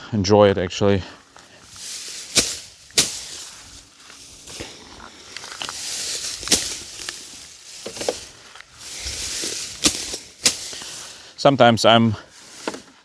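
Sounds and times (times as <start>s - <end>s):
machete swishing through grass: 1.6s - 11.3s, 12.3s - 13.0s
sharp cutting strikes: 1.7s - 4.7s, 8.9s - 11.2s.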